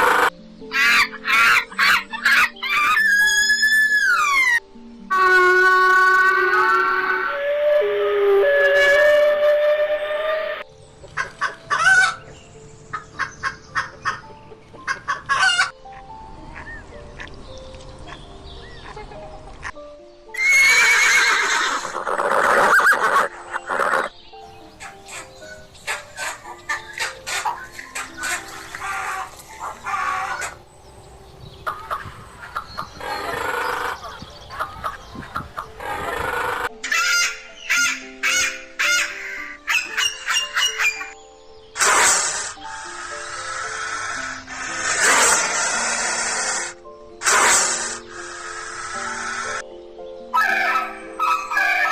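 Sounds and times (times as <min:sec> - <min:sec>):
background music: 0:00.0 - 0:51.9
chickens clucking: 0:11.0 - 0:15.8, 0:22.1 - 0:41.2
chicken clucking: 0:24.8 - 0:30.6, 0:31.6 - 0:36.1.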